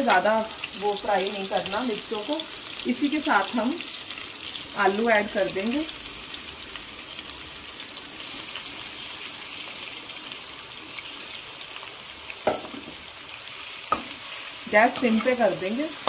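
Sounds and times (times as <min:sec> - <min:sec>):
hot oil sizzling in a pan: 0:00.0 - 0:16.0.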